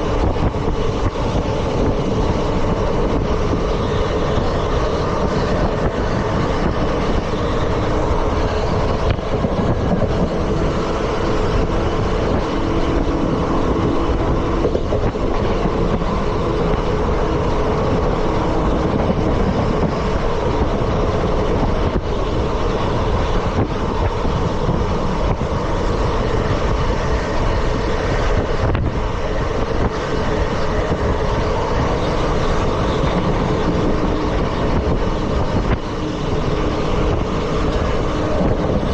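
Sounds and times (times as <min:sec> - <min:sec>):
train wheels rattling on rails: 0:00.0 - 0:38.9.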